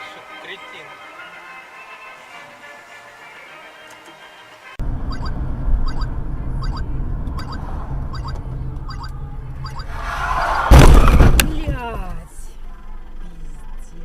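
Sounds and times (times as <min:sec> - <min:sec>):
car road and engine rumble: 0:04.7 - 0:14.0
turn signal ticking: 0:05.0 - 0:09.9
car crash impact: 0:09.9 - 0:12.0.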